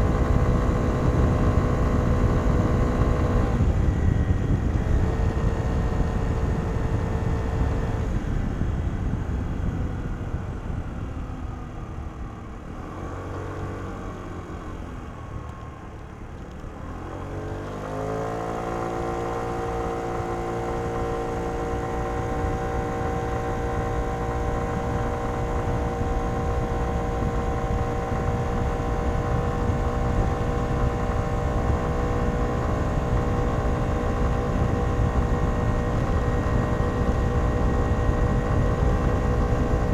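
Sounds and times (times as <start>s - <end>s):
scooter engine revving: 17.4s - 39.9s.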